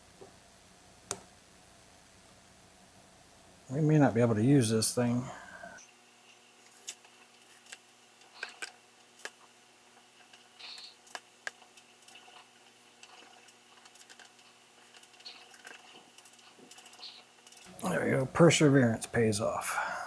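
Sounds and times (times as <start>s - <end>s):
small clicks of hands working: 5.8s - 17.7s.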